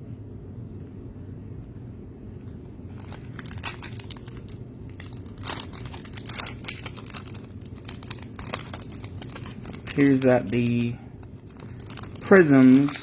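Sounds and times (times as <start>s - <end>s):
steady low hum: 0.0s - 13.0s
plastic wrapper crinkling and tearing: 2.5s - 13.0s.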